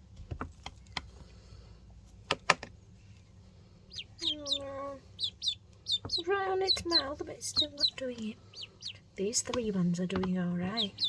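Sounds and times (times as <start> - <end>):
ducklings pecking food: 0.0 - 11.0
faint duckling peeps: 3.8 - 9.1, 10.7 - 11.0.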